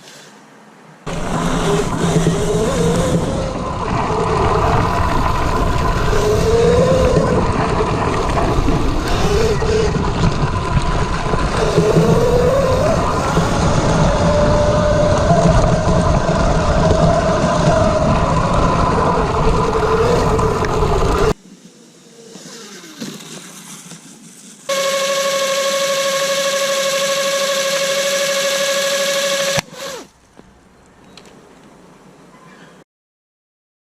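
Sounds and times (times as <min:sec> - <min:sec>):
electric motor whining: 0:01.1 - 0:21.4, 0:24.7 - 0:30.1.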